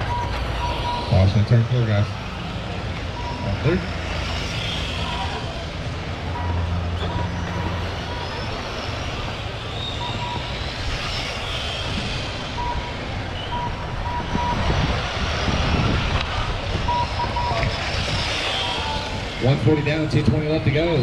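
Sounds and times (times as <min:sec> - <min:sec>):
short electronic beeps: 0:00.0 - 0:01.2, 0:03.1 - 0:03.6, 0:06.3 - 0:08.4, 0:09.8 - 0:10.6, 0:12.6 - 0:14.6
electric rc car motors whining: 0:00.0 - 0:21.0.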